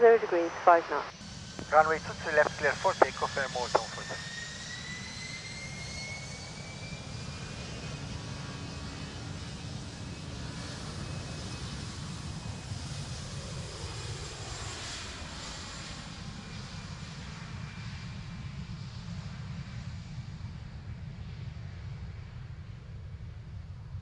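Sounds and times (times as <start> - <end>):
steady low rumble: 0.0 - 4.3
airliner engines at takeoff: 0.0 - 24.0.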